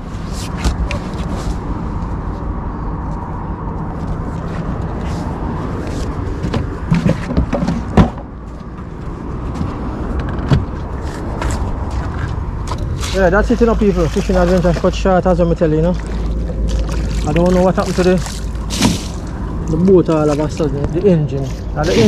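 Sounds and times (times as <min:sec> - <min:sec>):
outboard motor running: 0:12.6 - 0:20.9.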